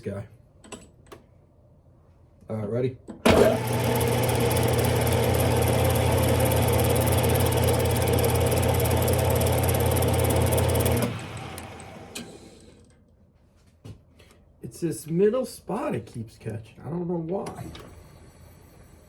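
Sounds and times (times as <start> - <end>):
lathe humming and whirring: 3.3 - 12.8.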